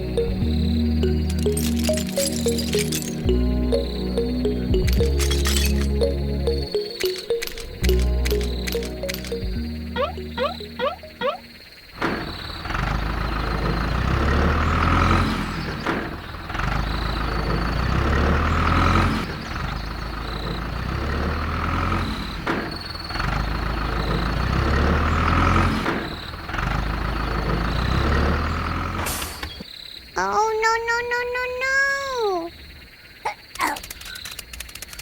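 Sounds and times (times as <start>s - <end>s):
vehicle engine rumbling: 0.0s - 29.1s.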